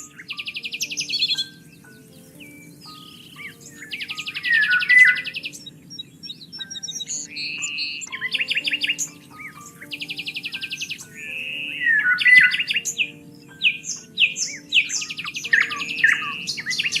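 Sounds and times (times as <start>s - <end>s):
fast buzzy bird trill: 0.0s - 17.0s
songbirds chirping: 0.0s - 17.0s.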